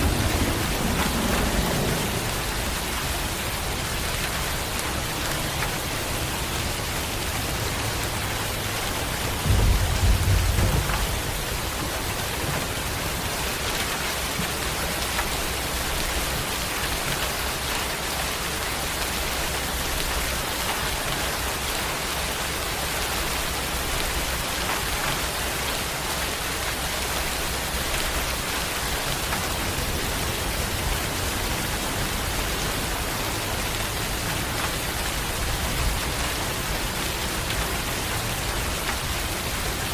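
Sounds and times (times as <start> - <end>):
low rumble: 0.0 - 4.2, 9.3 - 13.2
steady rain falling: 0.0 - 39.9.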